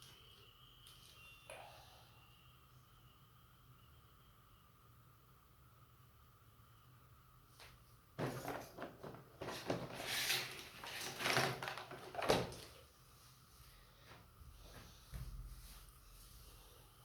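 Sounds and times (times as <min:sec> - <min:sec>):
knocks scrapes and rustles: 0:08.2 - 0:12.7.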